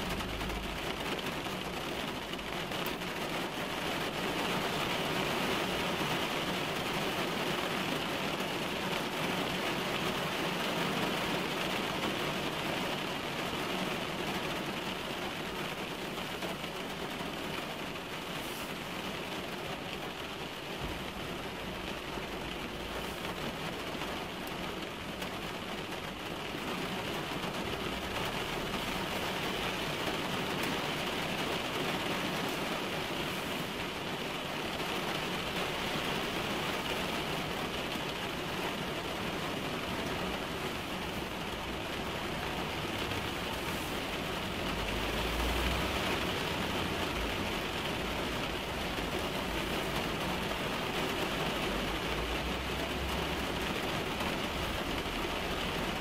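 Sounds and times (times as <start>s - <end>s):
rain drumming on car roof: 0.0s - 56.0s.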